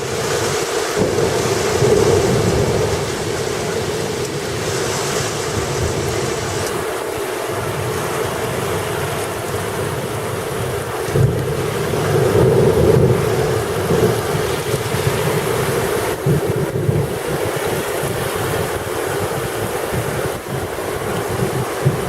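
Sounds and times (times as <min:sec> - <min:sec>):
heavy rain pouring: 0:00.0 - 0:22.0
wind buffeting microphone: 0:00.0 - 0:22.0.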